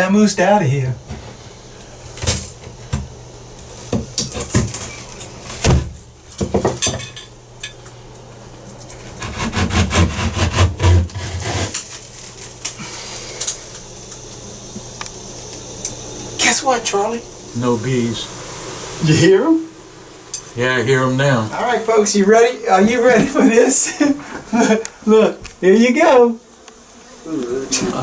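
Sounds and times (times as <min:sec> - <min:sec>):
drywall knocking and cracking: 0:05.6 - 0:07.0
drywall scraping and crumbling: 0:09.0 - 0:13.0.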